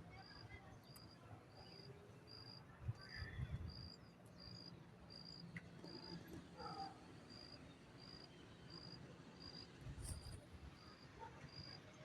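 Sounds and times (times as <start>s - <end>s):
cricket chirping: 3.7s - 5.4s.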